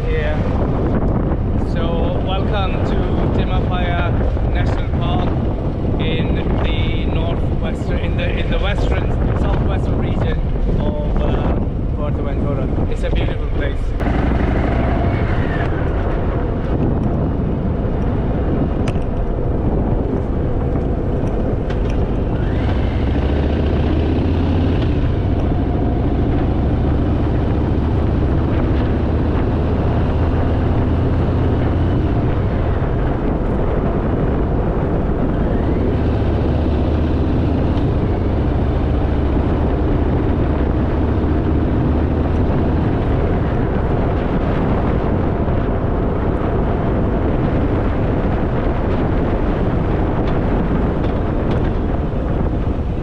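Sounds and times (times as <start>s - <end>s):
wind rush on microphone: 0.0s - 53.0s
motorcycle engine running: 13.8s - 53.0s.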